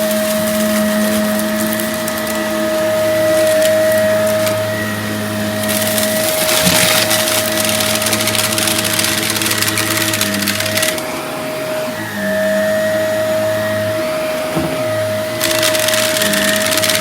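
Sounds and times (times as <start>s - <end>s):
debris crackling in vacuum: 0.0s - 4.9s, 5.6s - 11.0s
vacuum cleaner motor whine: 0.0s - 17.0s.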